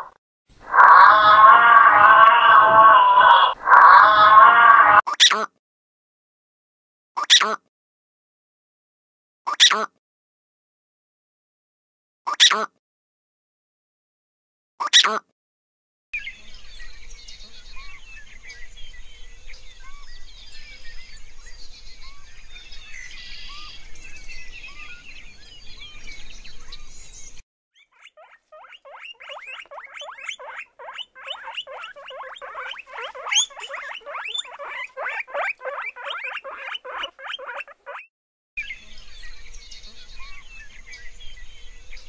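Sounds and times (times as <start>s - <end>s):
guinea pigs squeaking: 27.8s - 38.1s
small chirps: 27.8s - 38.1s.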